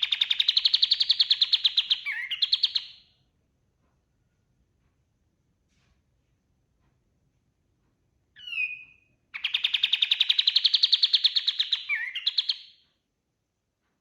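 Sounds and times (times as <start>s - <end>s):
songbird call and trill: 0.0s - 3.0s, 8.4s - 12.8s.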